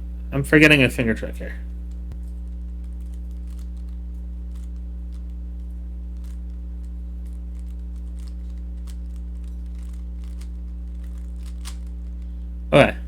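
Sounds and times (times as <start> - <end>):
steady low hum: 0.0 - 13.0
plastic puzzle cube clicks: 7.5 - 12.0.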